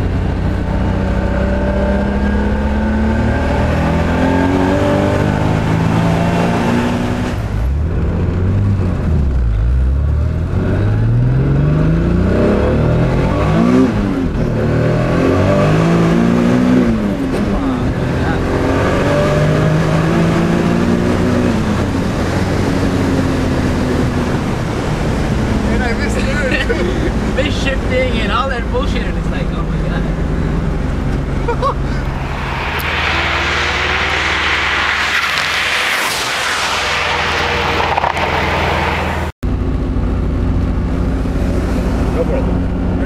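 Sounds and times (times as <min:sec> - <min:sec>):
car engine running loud: 0:12.0 - 0:43.0.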